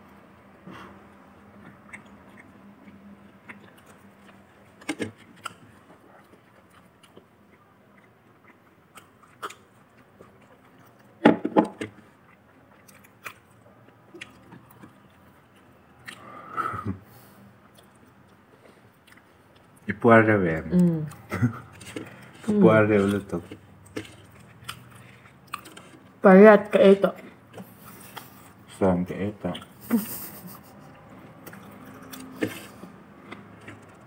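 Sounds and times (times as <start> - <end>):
crunchy chewing of fried chicken: 0.7 - 11.2, 11.8 - 19.9, 20.5 - 26.2, 27.2 - 34.0.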